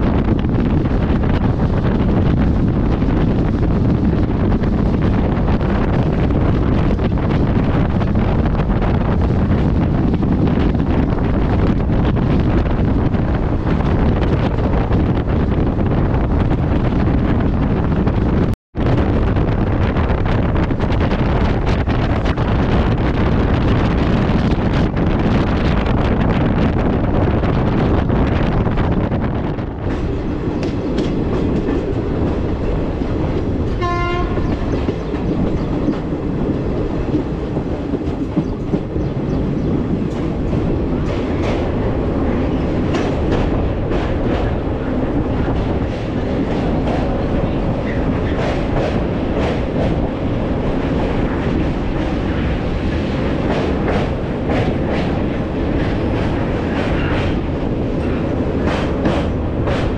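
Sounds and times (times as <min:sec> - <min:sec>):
train rumbling: 0:00.0 - 0:59.9
train horn toot: 0:33.7 - 0:34.8.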